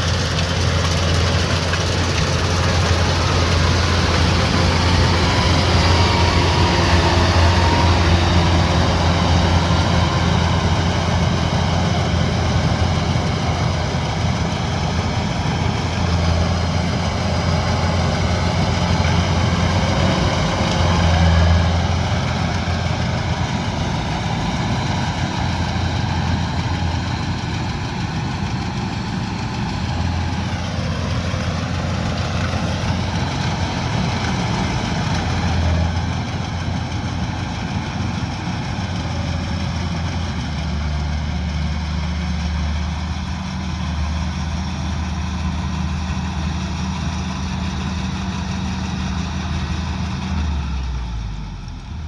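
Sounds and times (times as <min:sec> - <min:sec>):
combine harvester diesel engine: 0:00.0 - 0:52.0.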